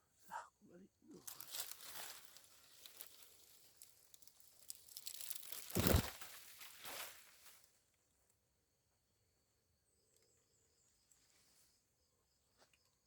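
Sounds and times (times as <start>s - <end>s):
crackling crumpling rustle: 1.2s - 7.7s.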